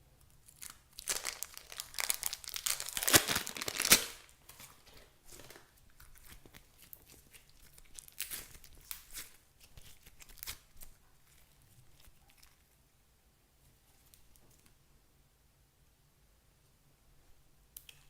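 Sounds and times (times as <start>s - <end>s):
crinkling tearing handling noise: 0.5s - 12.5s.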